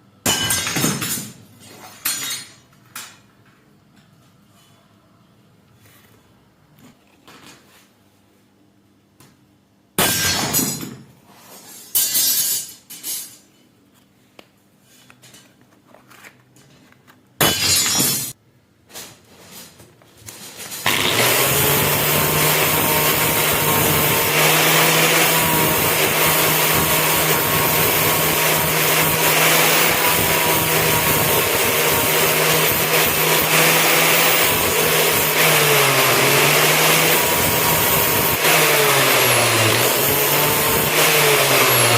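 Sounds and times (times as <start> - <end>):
electric power tool humming: 20.9 - 41.9.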